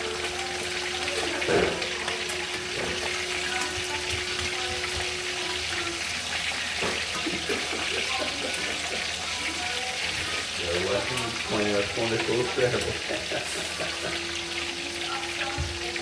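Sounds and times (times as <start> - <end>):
water running: 0.0 - 16.0.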